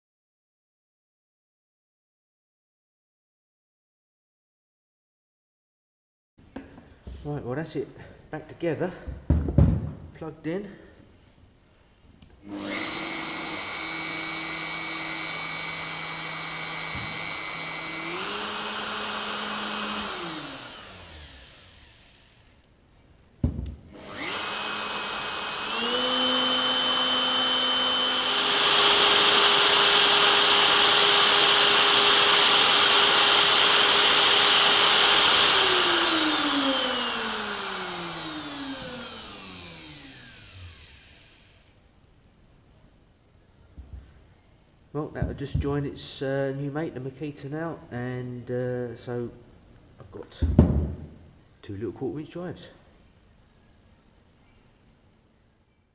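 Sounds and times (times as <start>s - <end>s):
router motor whining: 12.4s - 22.6s, 23.9s - 41.8s.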